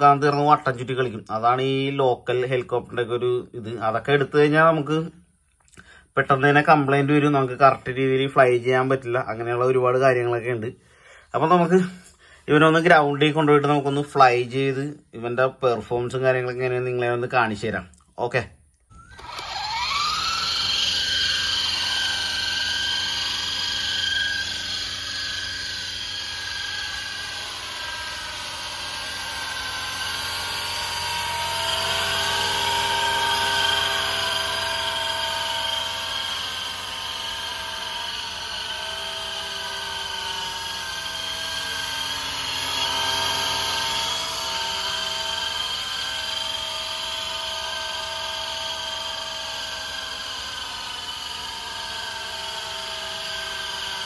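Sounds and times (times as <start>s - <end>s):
toy helicopter rotor motors whining: 0.0s - 2.0s, 18.8s - 54.0s.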